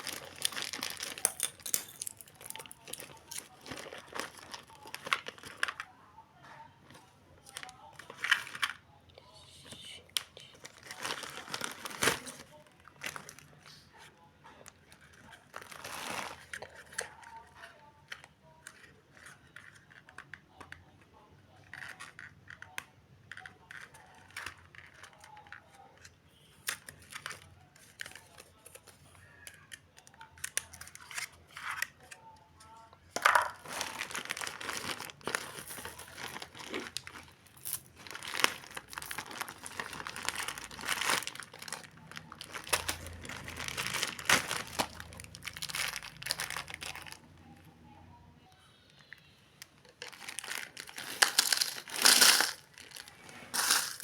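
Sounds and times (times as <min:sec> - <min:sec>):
packaging crinkling and tearing: 0:00.0 - 0:05.9, 0:10.1 - 0:13.8, 0:14.8 - 0:17.4, 0:33.2 - 0:47.3, 0:49.8 - 0:54.0.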